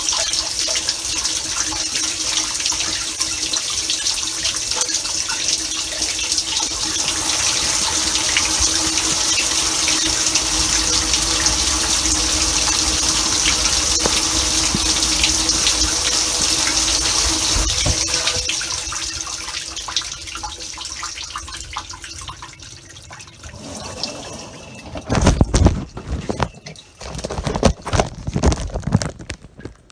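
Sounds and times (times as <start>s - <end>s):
water spraying inside dishwasher: 4.9s - 21.8s, 23.0s - 28.0s
dishwasher hum: 6.7s - 19.1s, 23.0s - 28.4s.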